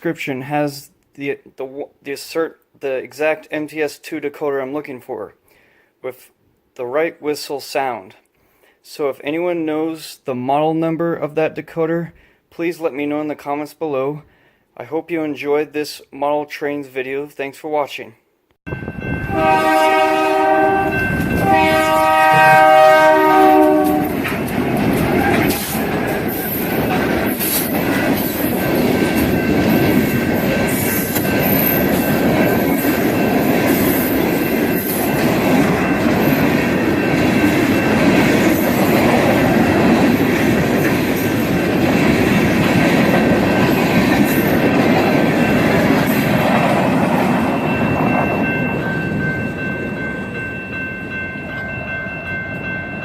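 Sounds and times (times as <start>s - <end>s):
train whistle: 19.2s - 24.2s, 25.2s - 25.9s
model train rattling on track: 21.1s - 50.1s.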